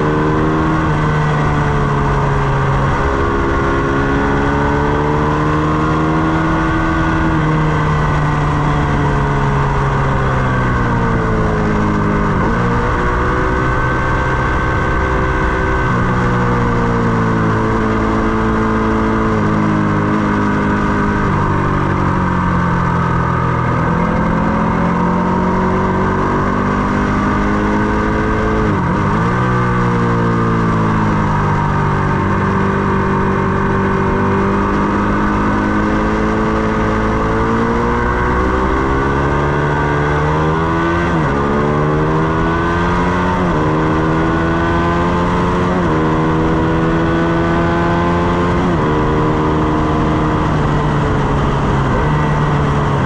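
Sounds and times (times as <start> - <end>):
motorcycle engine revving at speed: 0.0 - 53.0.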